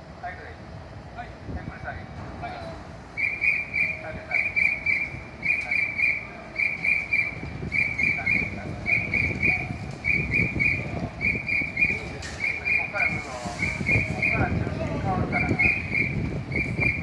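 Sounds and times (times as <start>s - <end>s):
electronic warning beeper: 3.2s - 14.5s, 15.3s - 17.0s.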